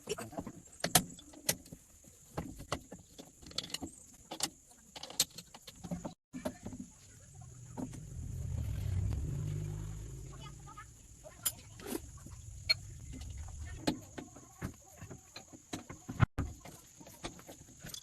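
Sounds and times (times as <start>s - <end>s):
vehicle engine rumble passing: 7.0s - 14.2s.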